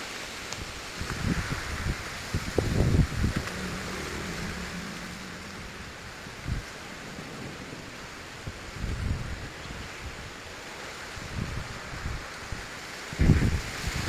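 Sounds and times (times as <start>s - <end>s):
wind buffeting microphone: 0.6s - 14.0s
strong wind rushing: 1.0s - 9.9s.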